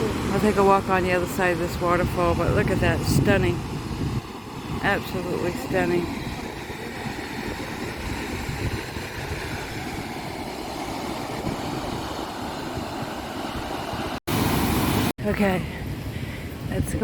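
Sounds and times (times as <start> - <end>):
wind rumbling on microphone: 0.0 - 17.0
waterfall rushing: 3.6 - 15.1.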